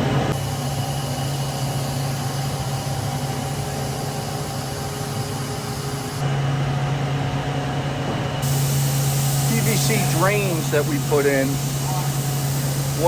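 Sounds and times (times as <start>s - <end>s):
machine hum: 0.0s - 13.0s
hiss: 8.4s - 13.0s.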